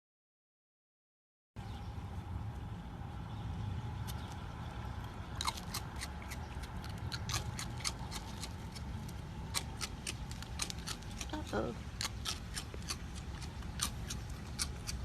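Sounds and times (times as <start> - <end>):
low steady hum: 1.6 - 15.0
sharp clicks and snips: 5.4 - 15.0.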